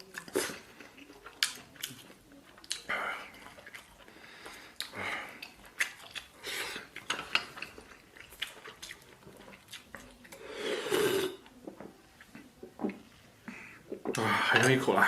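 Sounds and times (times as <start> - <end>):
chewing: 0.0 - 14.8
slurp or sharp breath intake: 10.4 - 11.4.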